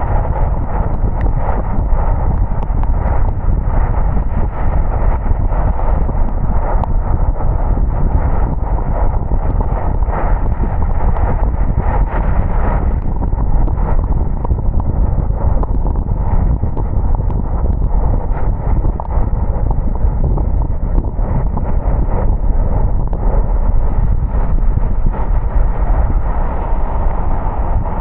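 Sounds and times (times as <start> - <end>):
tyres rumbling on wet road: 25.1 - 28.0.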